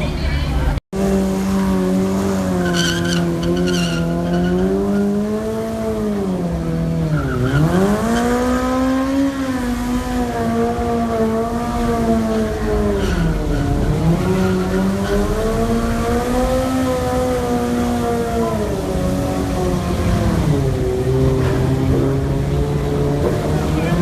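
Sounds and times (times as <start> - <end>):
car engine revving high: 1.0 - 24.0
tyre squeal: 2.5 - 5.2, 12.8 - 15.6.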